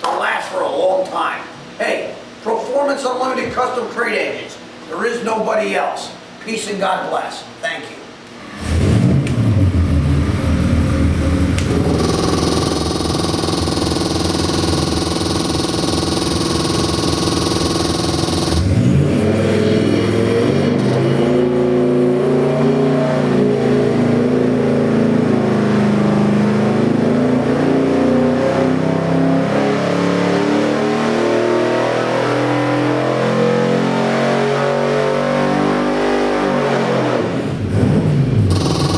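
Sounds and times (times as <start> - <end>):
car engine revving: 8.6 - 38.9.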